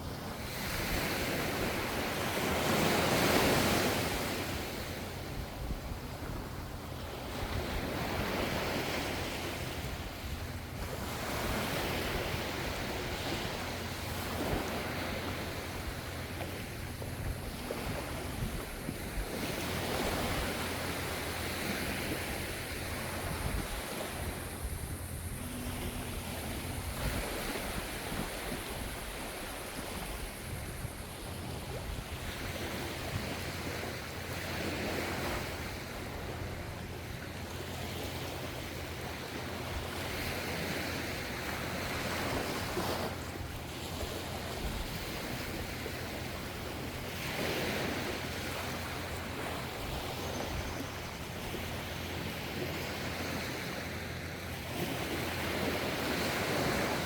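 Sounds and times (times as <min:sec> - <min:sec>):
low rumble of the sea: 0:00.0 - 0:57.0
ocean waves washing onto shore: 0:00.0 - 0:57.0.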